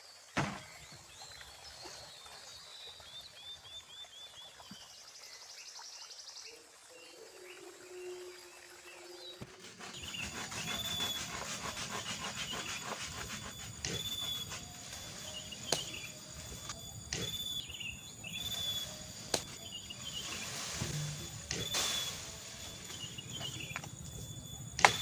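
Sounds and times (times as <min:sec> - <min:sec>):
insects calling: 0:07.1 - 0:25.0
birds calling: 0:09.4 - 0:25.0.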